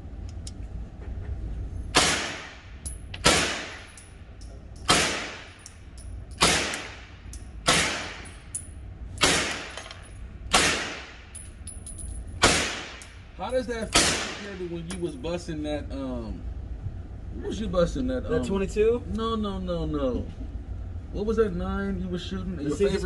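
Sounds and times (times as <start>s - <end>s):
gunshots with echo: 10.5s - 11.2s.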